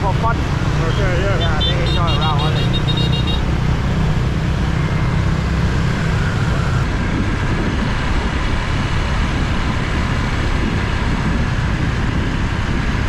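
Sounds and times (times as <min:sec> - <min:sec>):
motorbike engine: 0:00.0 - 0:06.9
city traffic: 0:00.0 - 0:13.0.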